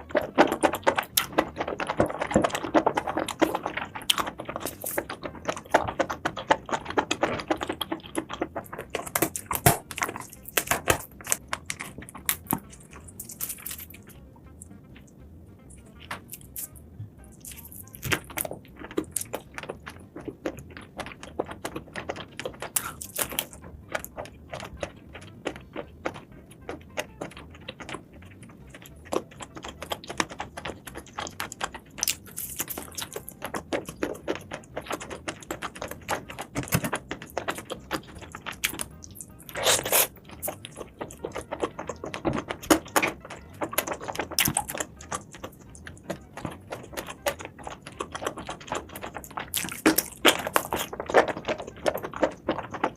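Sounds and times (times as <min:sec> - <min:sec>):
chewing seafood: 0:00.0 - 0:52.9.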